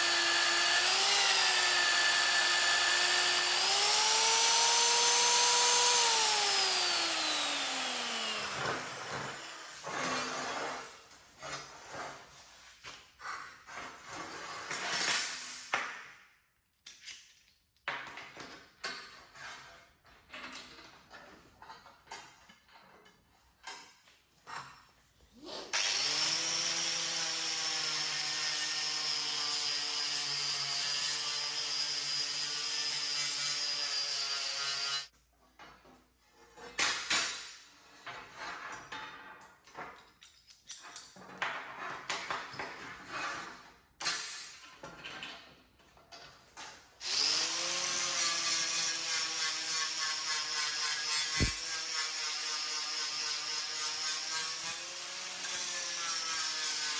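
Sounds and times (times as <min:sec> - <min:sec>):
electric power tool motor running: 0:00.0 - 0:09.8, 0:47.0 - 0:49.1, 0:49.9 - 0:52.2.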